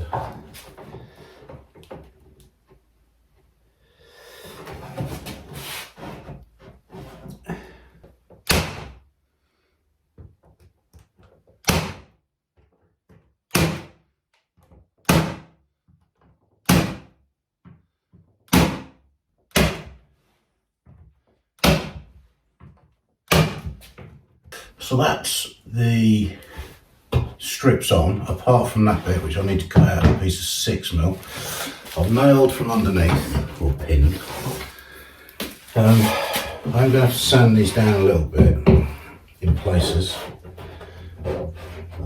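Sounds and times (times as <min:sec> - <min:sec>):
tacks hammered into wood: 0:08.4 - 0:09.0, 0:11.6 - 0:12.2, 0:13.5 - 0:14.0, 0:15.0 - 0:15.6, 0:16.6 - 0:17.2, 0:18.5 - 0:20.0, 0:21.6 - 0:22.1, 0:23.3 - 0:23.8
handling and rustling: 0:31.0 - 0:38.1.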